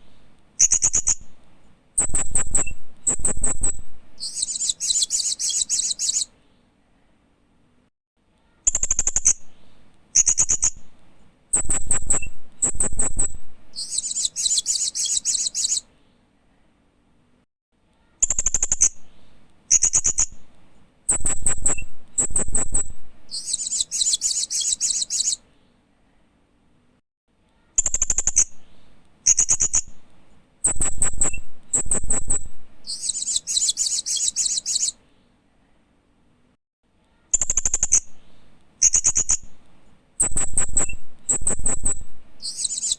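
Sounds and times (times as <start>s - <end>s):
parrot chirps and buzzy trill: 0.6s - 1.4s, 2.0s - 6.3s, 10.2s - 15.9s, 19.7s - 20.5s, 21.1s - 25.4s, 29.2s - 35.0s, 38.8s - 39.6s, 40.2s - 42.9s.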